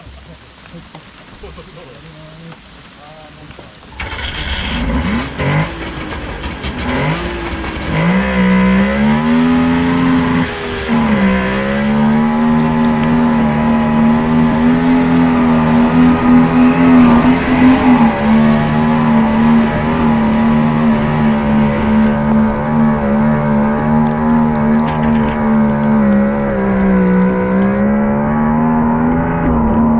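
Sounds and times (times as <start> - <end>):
engine revving under load: 4.0 - 29.9.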